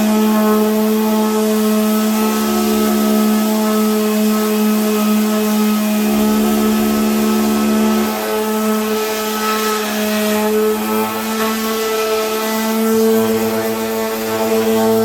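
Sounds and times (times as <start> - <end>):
power tool motor humming: 0.0 - 15.0.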